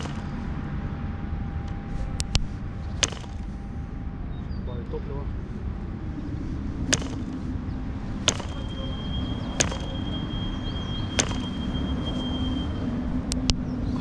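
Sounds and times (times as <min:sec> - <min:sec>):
model engine propeller snaps: 0:09.6 - 0:10.0.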